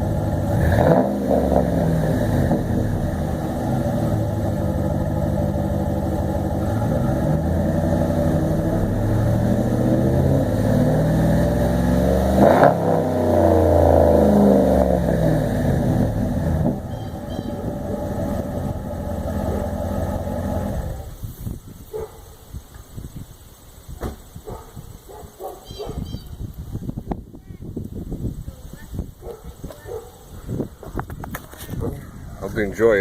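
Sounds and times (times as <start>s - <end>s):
engine exhaust note: 0.0s - 21.4s.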